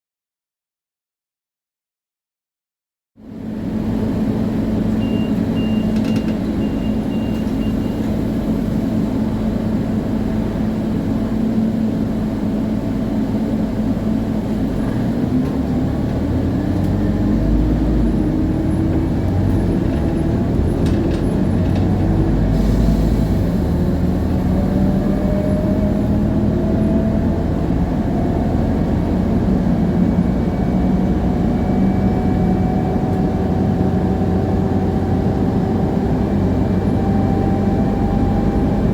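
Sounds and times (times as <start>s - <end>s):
diesel bus engine: 3.2s - 38.9s
rear axle whine rising: 14.0s - 38.9s.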